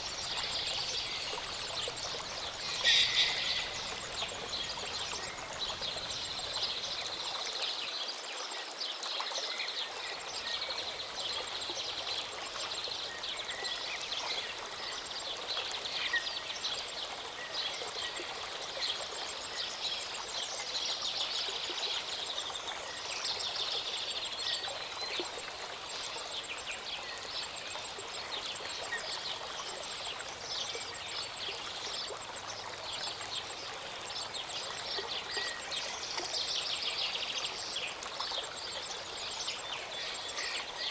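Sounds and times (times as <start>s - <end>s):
birds chirping and trilling: 0.0s - 7.0s
stream running: 0.0s - 40.9s.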